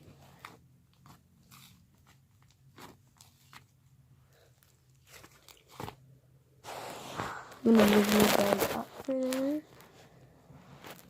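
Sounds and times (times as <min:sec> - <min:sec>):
slime crackling and squishing: 0:00.2 - 0:03.9, 0:07.0 - 0:09.8.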